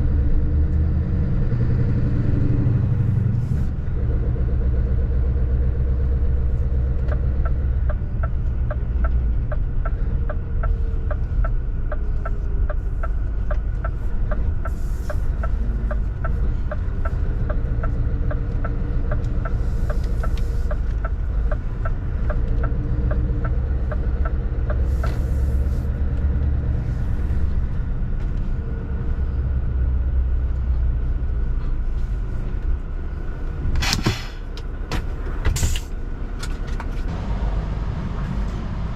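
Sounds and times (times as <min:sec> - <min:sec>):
truck engine low rumble: 0:00.0 - 0:38.9
short hisses: 0:33.8 - 0:34.5.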